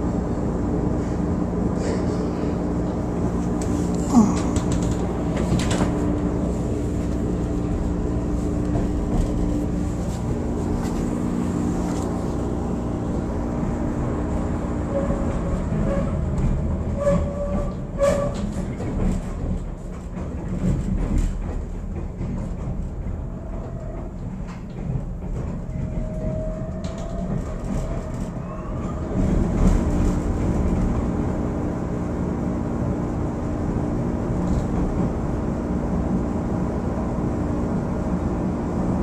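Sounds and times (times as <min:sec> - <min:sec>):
train rumbling on rails: 0:00.0 - 0:39.0
wheels clicking on track: 0:03.6 - 0:06.3, 0:15.2 - 0:31.1.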